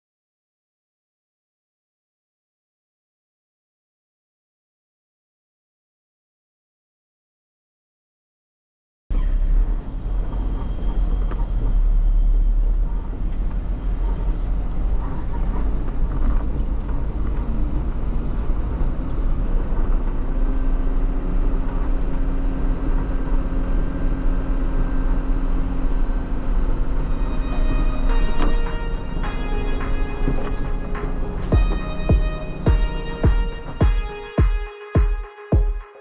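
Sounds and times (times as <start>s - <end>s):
steady hum: 27.0s - 36.0s.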